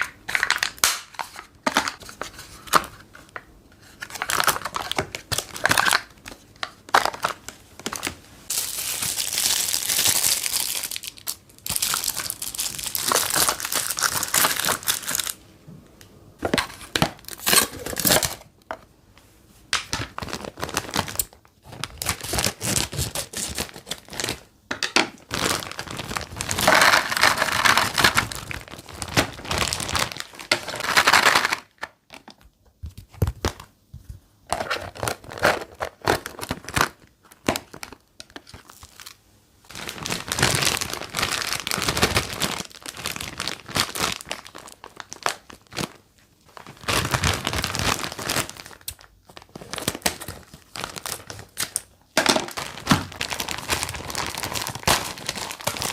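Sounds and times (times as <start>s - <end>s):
plastic packaging crinkling: 0.0s - 15.4s, 16.4s - 18.6s, 19.7s - 32.4s, 34.5s - 55.9s.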